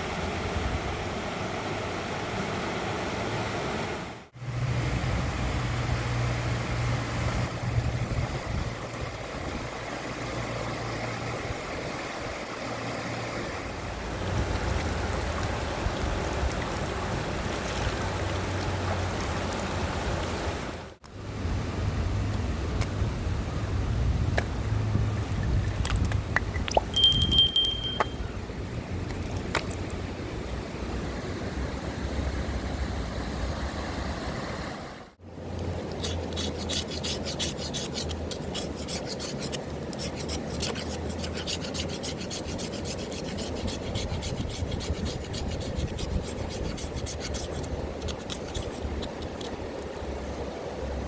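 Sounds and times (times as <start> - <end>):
rasping scraping strokes: 35.9 - 49.3.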